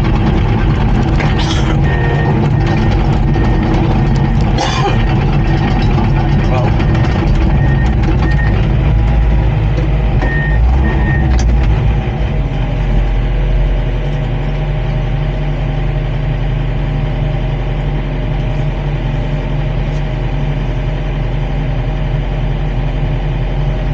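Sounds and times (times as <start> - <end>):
bulldozer diesel engine running: 0.0 - 23.9
backup alarm beeps: 1.2 - 8.7, 10.2 - 11.4.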